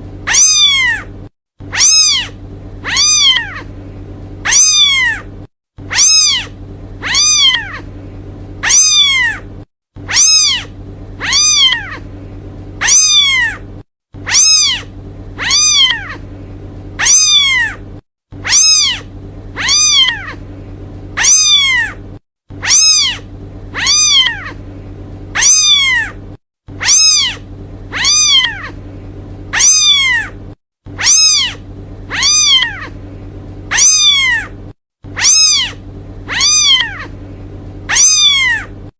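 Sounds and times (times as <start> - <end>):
faint low hum: 0.0 - 38.9
kitten meowing: 0.3 - 1.1, 1.7 - 3.7, 4.4 - 5.3, 5.9 - 7.9, 8.6 - 9.5, 10.1 - 12.1, 12.8 - 13.6, 14.2 - 16.2, 17.0 - 17.8, 18.4 - 20.4, 21.2 - 22.0, 22.6 - 24.6, 25.4 - 26.2, 26.8 - 28.8, 29.5 - 30.4, 31.0 - 33.0, 33.7 - 34.5, 35.2 - 37.2, 37.9 - 38.7.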